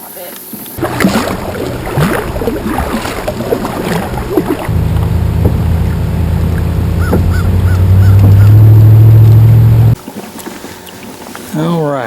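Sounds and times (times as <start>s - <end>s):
low droning hum: 0.8s - 10.0s.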